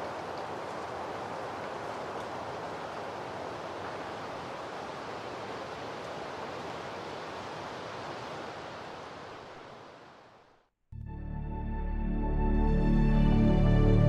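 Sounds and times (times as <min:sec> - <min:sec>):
steady rushing outdoor noise: 0:00.0 - 0:10.6.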